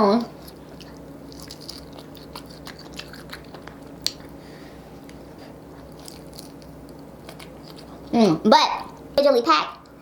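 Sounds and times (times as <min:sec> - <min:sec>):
faint steady hum: 0:00.0 - 0:10.0
person chewing: 0:00.3 - 0:04.4, 0:05.0 - 0:08.2.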